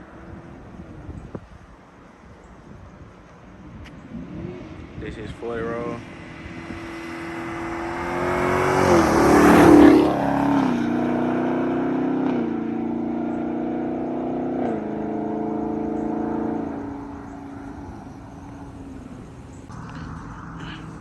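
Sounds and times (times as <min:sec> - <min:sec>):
car engine accelerating past: 0:05.9 - 0:21.0.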